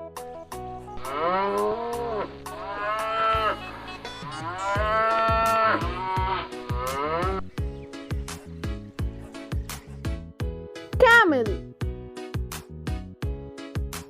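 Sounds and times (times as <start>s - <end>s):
background music with steady beat: 0.0s - 14.0s
buffalo lowing: 0.7s - 10.0s.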